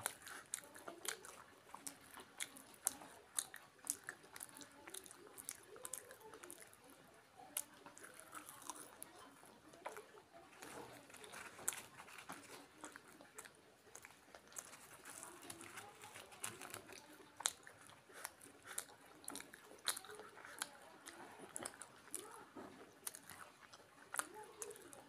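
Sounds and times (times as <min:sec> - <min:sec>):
wet chewing mouth smacks: 0:00.0 - 0:25.0.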